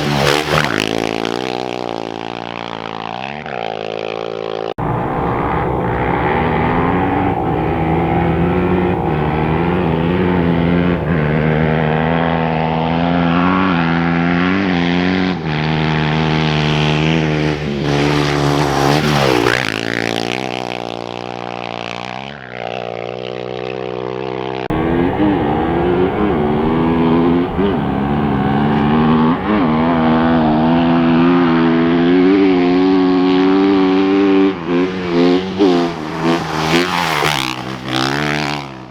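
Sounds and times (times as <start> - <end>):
motorcycle engines revving: 0.0 - 2.9, 4.8 - 13.3, 15.5 - 20.8, 24.7 - 38.9
vehicle speeding past: 4.8 - 14.0, 17.8 - 20.8, 24.7 - 38.9.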